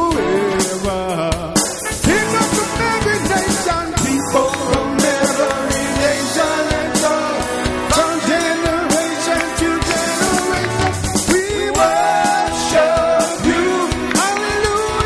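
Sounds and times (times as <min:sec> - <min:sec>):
drum kit: 0:00.0 - 0:15.0
people singing: 0:00.0 - 0:15.0
worship band playing upbeat song: 0:00.0 - 0:15.0.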